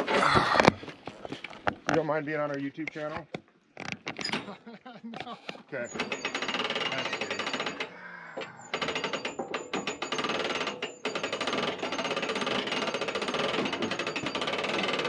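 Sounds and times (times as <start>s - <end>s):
rapid mechanical clatter: 5.8s - 7.9s, 8.7s - 15.0s.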